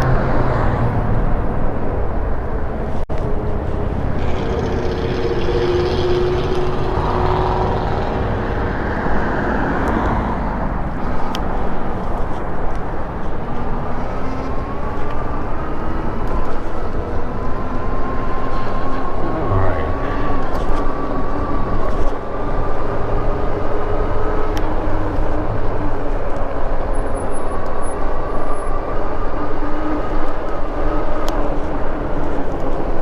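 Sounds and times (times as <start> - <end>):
passing traffic: 0.0 - 33.0
road and wind noise: 0.0 - 33.0.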